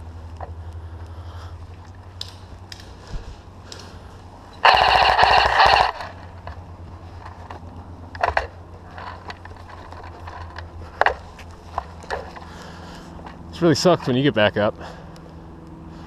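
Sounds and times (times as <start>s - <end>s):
airsoft rifle full-auto burst: 4.6s - 6.3s.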